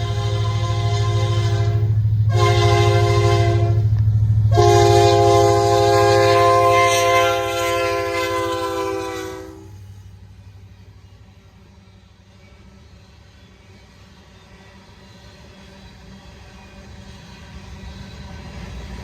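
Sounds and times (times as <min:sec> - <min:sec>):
locomotive air horn blasts: 0:00.0 - 0:03.9, 0:04.5 - 0:09.8
diesel engine rumble: 0:00.0 - 0:08.8.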